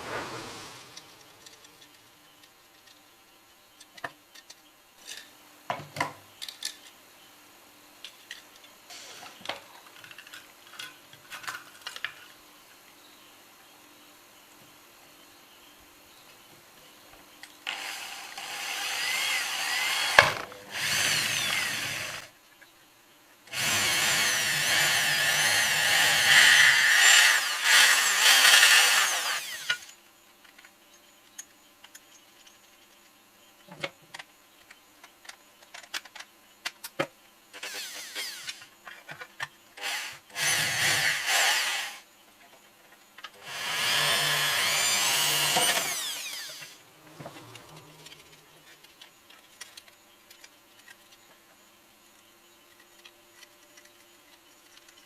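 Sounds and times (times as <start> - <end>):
electric power drill running: 17.7 - 22.3, 23.5 - 29.9, 37.6 - 38.6, 39.8 - 42.0, 43.4 - 46.8.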